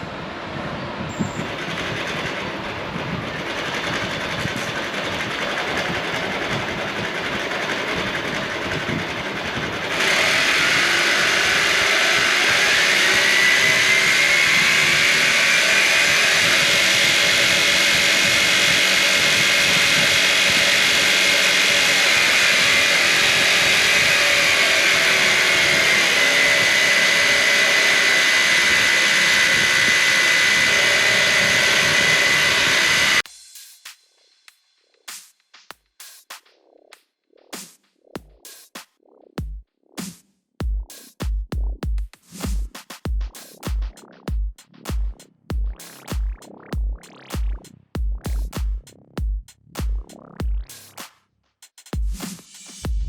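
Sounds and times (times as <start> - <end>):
gear noise: 1.2 - 33.2
electric motor whine: 3.4 - 33.2.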